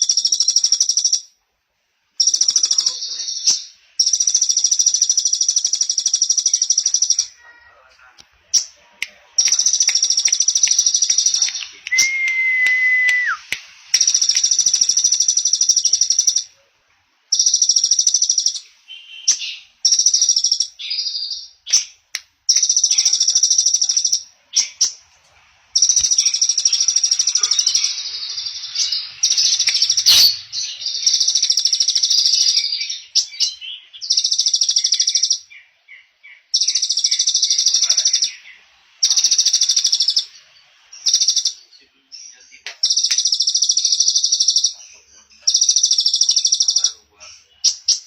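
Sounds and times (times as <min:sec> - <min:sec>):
bird chirps: 0:00.0 - 0:01.4, 0:02.2 - 0:07.8, 0:08.5 - 0:16.7, 0:17.3 - 0:25.1, 0:25.7 - 0:48.0
songbird trilling: 0:25.8 - 0:40.3.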